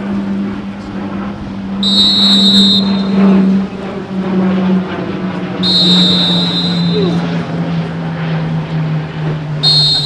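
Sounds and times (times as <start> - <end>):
steady low hum: 0.0 - 10.0
shrill whistle blasts: 1.7 - 3.8, 5.5 - 7.6, 9.5 - 10.0.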